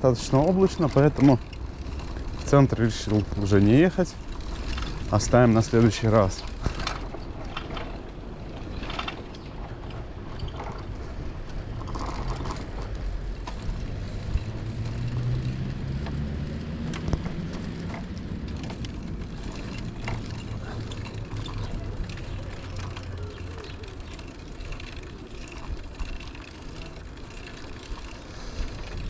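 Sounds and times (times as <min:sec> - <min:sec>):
wind rumbling on microphone: 0:00.0 - 0:23.1
bicycle clicks and rattles: 0:00.0 - 0:29.0
tyre and road noise: 0:00.0 - 0:29.0.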